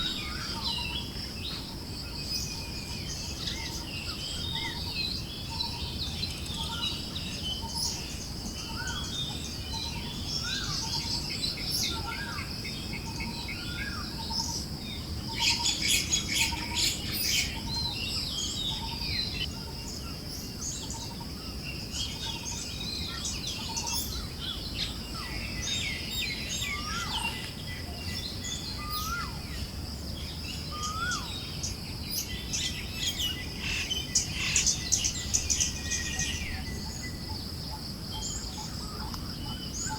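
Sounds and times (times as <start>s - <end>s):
birds chirping and calling: 0.0s - 39.9s.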